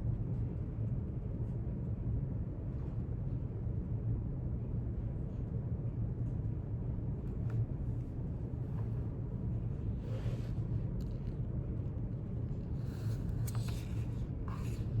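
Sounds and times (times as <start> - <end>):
low room rumble: 3.2 - 15.0.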